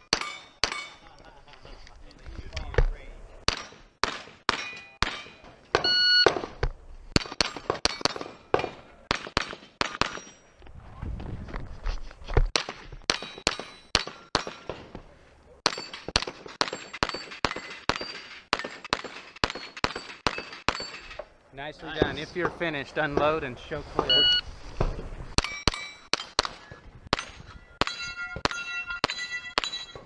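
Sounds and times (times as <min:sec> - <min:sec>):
ringing steel targets: 0:00.0 - 0:01.1, 0:03.5 - 0:06.5, 0:07.2 - 0:10.6, 0:13.1 - 0:15.0, 0:15.6 - 0:21.3, 0:25.4 - 0:30.0
rifle gunshots: 0:03.5 - 0:06.6, 0:15.6 - 0:20.9.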